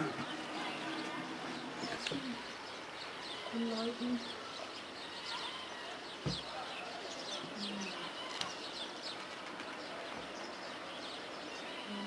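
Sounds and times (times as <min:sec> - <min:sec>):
outdoor background hiss: 0:00.0 - 0:12.0
small birds chirping: 0:00.0 - 0:12.0
soft thump: 0:06.2 - 0:06.5.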